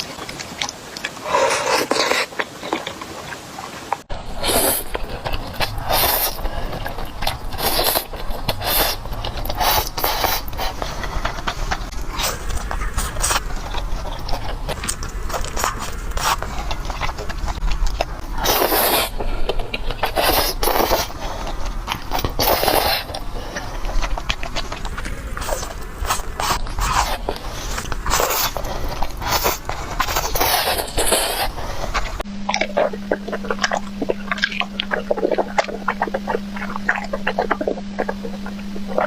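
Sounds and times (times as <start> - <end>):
slurping noodles: 0.0 - 32.2
wet mouth clicks: 0.0 - 39.0.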